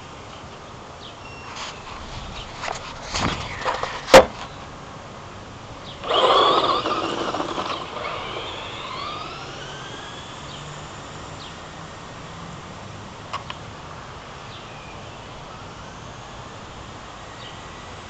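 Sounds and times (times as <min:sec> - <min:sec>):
tyres on dirt: 0:06.0 - 0:11.5
electric motor whine: 0:06.0 - 0:12.2, 0:15.4 - 0:17.1.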